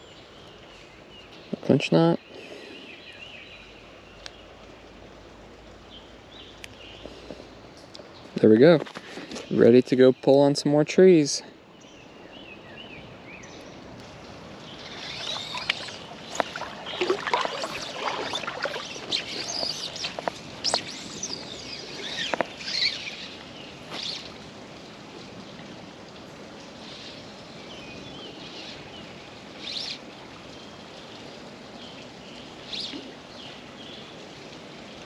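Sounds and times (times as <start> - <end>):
flowing creek rushing: 12.4 - 35.0
water splashing in creek: 13.8 - 26.9
faint bird chirps: 14.7 - 23.2.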